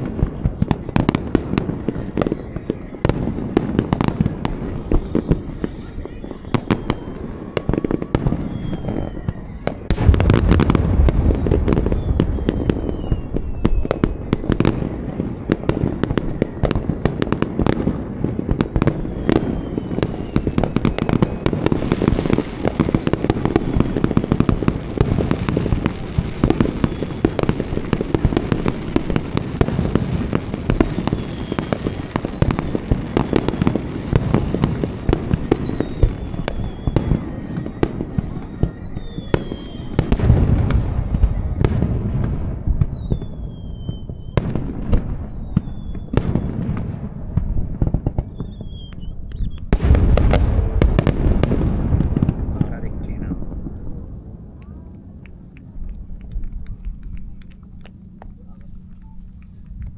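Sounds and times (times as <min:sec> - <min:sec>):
falling firework whistles: 0:00.0 - 0:59.8
fireworks bursting and crackling: 0:00.0 - 0:59.9
heavy low boom: 0:07.4 - 0:17.1, 0:38.6 - 0:56.7.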